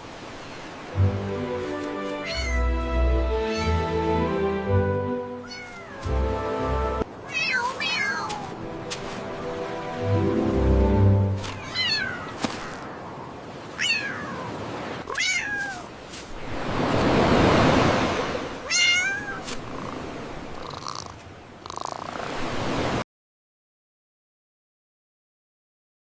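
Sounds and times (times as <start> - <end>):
kitten meowing: 2.2 - 2.8, 3.4 - 3.8, 5.4 - 6.1, 7.3 - 8.6, 11.6 - 12.4, 13.8 - 14.5, 15.1 - 15.8, 18.7 - 19.5.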